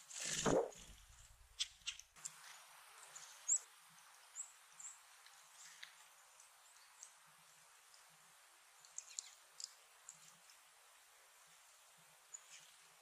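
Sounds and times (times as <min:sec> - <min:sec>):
faint outdoor hiss: 0:00.0 - 0:13.0
songbirds chip calls: 0:08.7 - 0:10.5.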